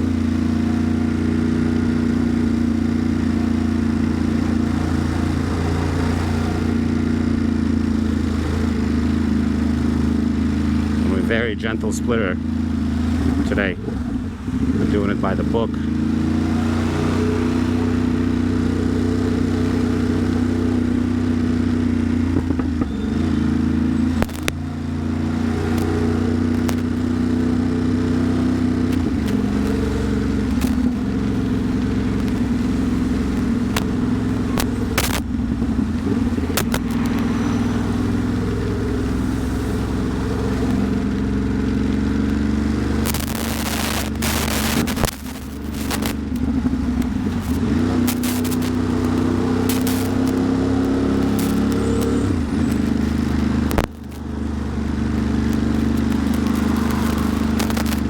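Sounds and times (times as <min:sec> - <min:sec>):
motorcycle engine running: 0:00.0 - 0:58.0
sharp ticks: 0:24.1 - 0:24.6, 0:25.4 - 0:27.5, 0:28.8 - 0:38.6, 0:43.0 - 0:58.0.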